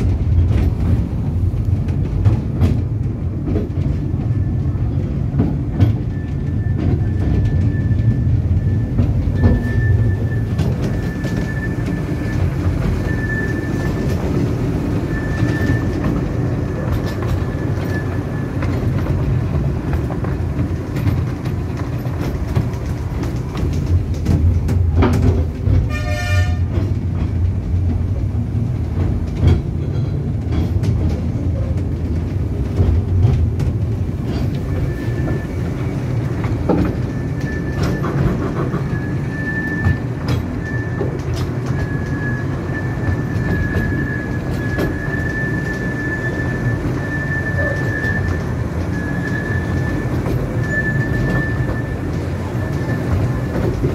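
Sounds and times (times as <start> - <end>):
train rumble: 0.0 - 53.9
wheels clicking over rail joints: 0.0 - 53.9
locomotive toot: 6.0 - 18.8, 25.8 - 26.9, 34.3 - 53.9
thin wheel squeal: 6.1 - 14.2, 15.0 - 16.0, 37.1 - 41.2, 41.8 - 53.2.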